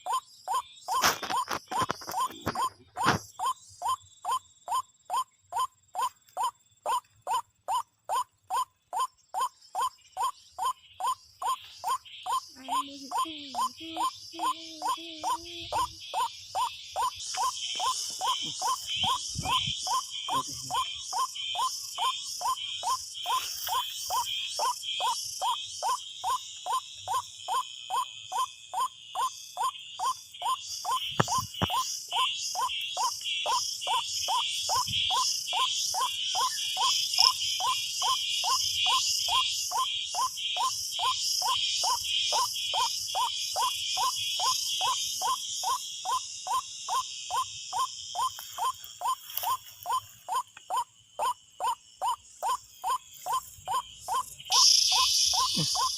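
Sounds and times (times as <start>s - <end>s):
insects buzzing: 0.0s - 55.9s
repeating insect call: 0.0s - 55.9s.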